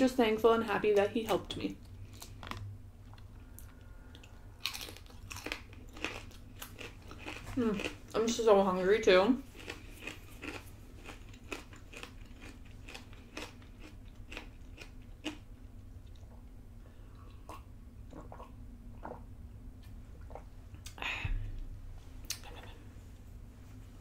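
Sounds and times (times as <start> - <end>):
person chewing crunchy food: 1.8 - 8.2, 9.4 - 16.5
person drinking and swallowing: 17.3 - 19.3, 20.2 - 21.5.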